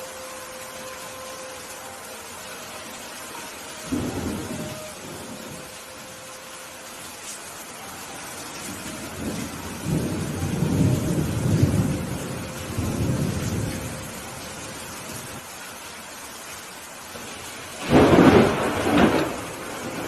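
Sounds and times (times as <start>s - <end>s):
steady rain: 0.0s - 20.0s
roll of thunder: 17.8s - 20.0s.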